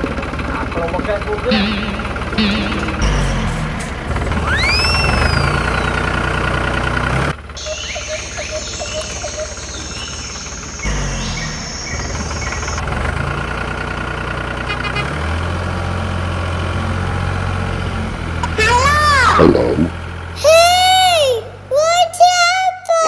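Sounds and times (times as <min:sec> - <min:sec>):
small engine running: 0:00.0 - 0:21.7
high steady chirring: 0:01.5 - 0:07.0, 0:07.6 - 0:12.8.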